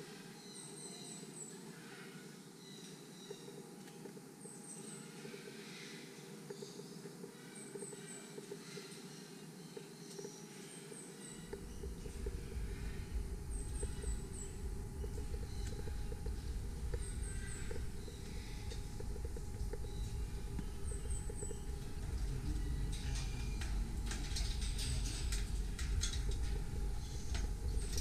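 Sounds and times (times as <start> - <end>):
small bird chirping: 6.5 - 25.4
sharp clicks and rustles: 11.5 - 28.0
steady low rumble: 11.5 - 28.0.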